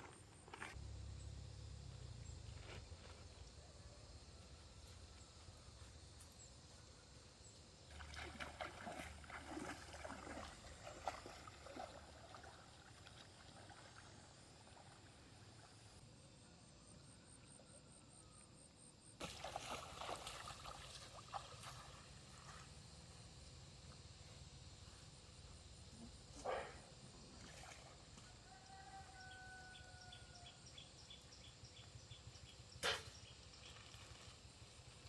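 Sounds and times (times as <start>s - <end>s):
water splashing in stream: 7.9s - 15.7s, 19.2s - 22.5s.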